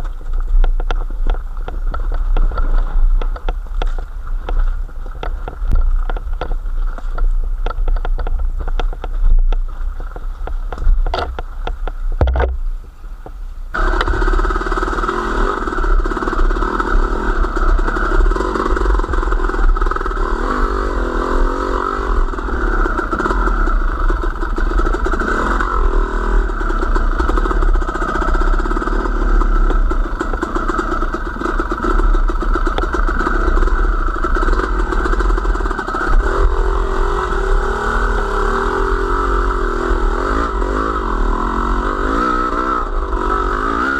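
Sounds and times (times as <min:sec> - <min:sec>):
vehicle engine rumbling: 0:00.0 - 0:43.9.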